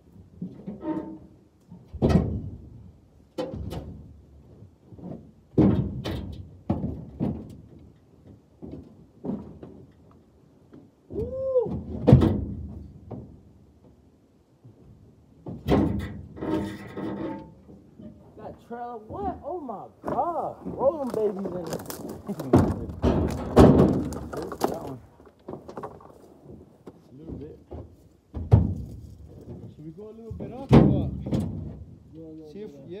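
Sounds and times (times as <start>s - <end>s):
wooden thuds and knocks: 1.7s - 14.0s, 20.0s - 32.0s.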